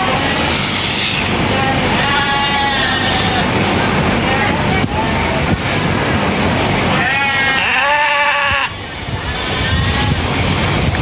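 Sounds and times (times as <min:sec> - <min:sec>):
steady rushing noise: 0:00.0 - 0:07.1, 0:08.6 - 0:11.0
sheep bleating: 0:01.6 - 0:03.5, 0:06.9 - 0:08.7.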